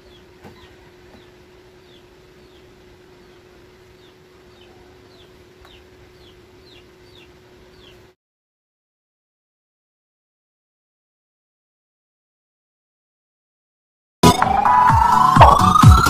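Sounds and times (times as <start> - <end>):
small bird chirping: 0.0 - 8.2.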